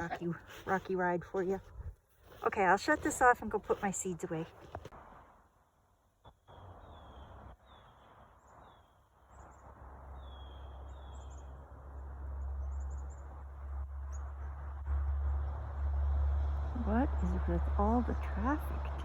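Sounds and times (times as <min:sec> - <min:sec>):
small birds chirping: 0:06.2 - 0:15.3
road traffic rumble: 0:09.3 - 0:19.0.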